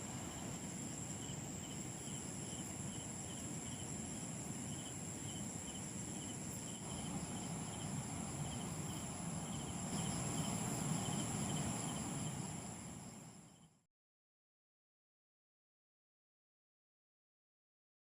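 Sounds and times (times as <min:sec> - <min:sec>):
low rumbling background noise: 0:00.0 - 0:13.6
crickets trilling: 0:00.0 - 0:13.8.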